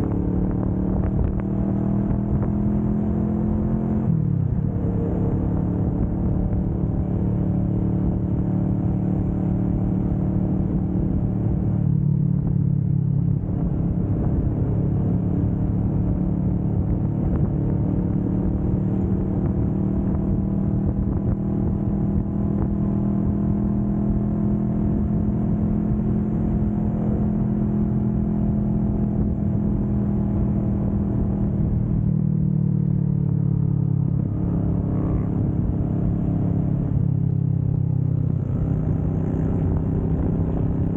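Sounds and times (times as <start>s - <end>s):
motorcycle engine at speed: 0.0s - 40.9s.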